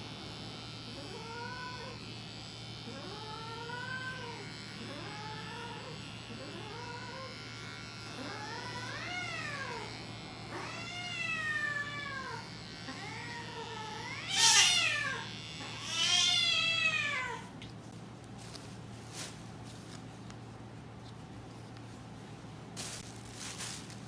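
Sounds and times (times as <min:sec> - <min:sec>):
cat yowling: 0:10.6 - 0:17.5.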